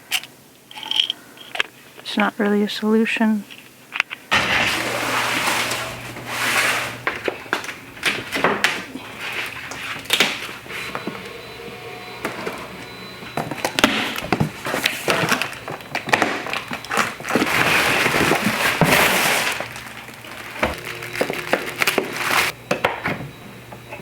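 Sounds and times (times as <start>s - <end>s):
rustling: 4.3s - 11.3s, 13.4s - 22.6s.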